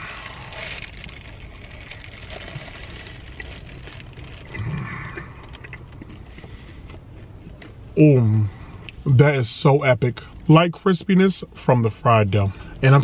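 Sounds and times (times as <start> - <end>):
man chewing crisp food: 0.0 - 8.0
man humming: 4.5 - 5.4.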